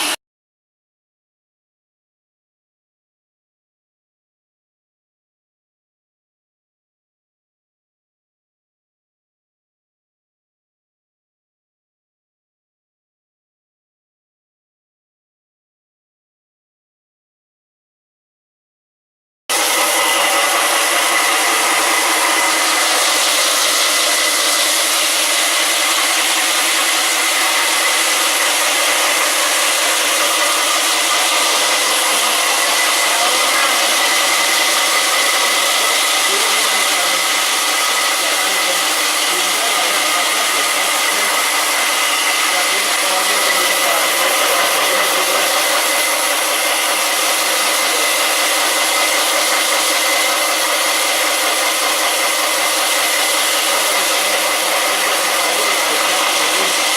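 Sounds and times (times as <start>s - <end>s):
stone-working machinery drone: 0.0s - 0.2s, 19.5s - 56.9s
high steady whine: 19.5s - 56.9s.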